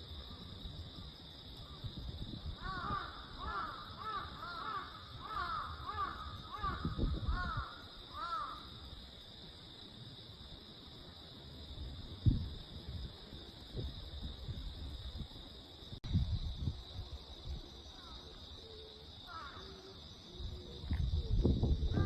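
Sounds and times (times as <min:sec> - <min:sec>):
wind rumbling on microphone: 0:00.0 - 0:18.6, 0:19.2 - 0:22.0
insect trill: 0:00.0 - 0:22.0
crow cawing: 0:02.6 - 0:08.7, 0:19.3 - 0:19.7.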